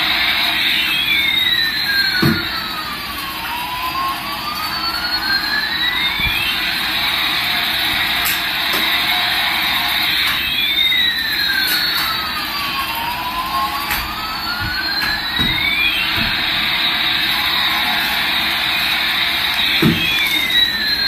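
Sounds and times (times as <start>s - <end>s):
toy jet engine sound effect: 0.0s - 21.0s.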